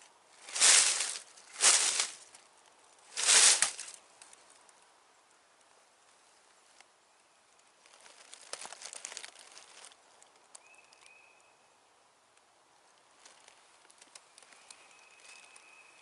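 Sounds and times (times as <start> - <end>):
dry leaves rustling: 0.0 - 4.7, 7.8 - 10.8, 13.1 - 16.0.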